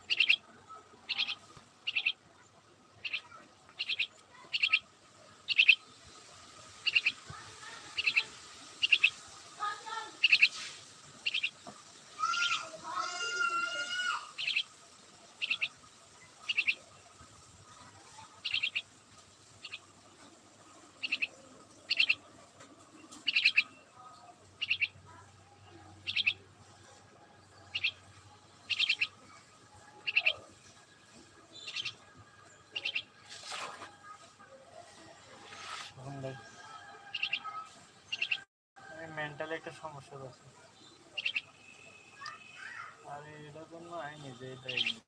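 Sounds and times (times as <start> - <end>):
drawn-out pitched bird call: 0.0 - 2.2, 3.0 - 5.9, 6.8 - 7.2, 7.9 - 9.2, 9.9 - 10.6, 11.2 - 11.6, 12.2 - 14.8, 15.4 - 15.8, 16.4 - 16.9, 18.3 - 18.9, 21.0 - 22.3, 23.1 - 24.0, 24.6 - 25.0, 26.0 - 26.4, 27.4 - 30.6, 32.6 - 33.2, 36.4 - 38.5, 40.9 - 43.0, 44.6 - 45.0
bird chirping: 0.0 - 38.5, 40.3 - 45.0.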